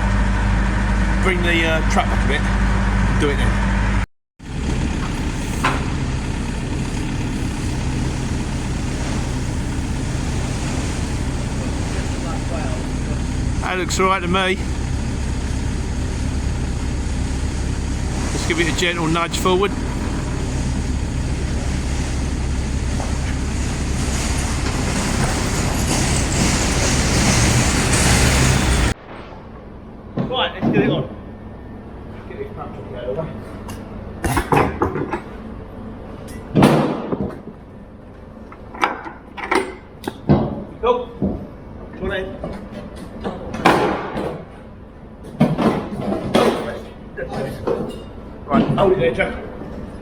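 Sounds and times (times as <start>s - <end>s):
heavy diesel engine idling: 0.0s - 29.0s.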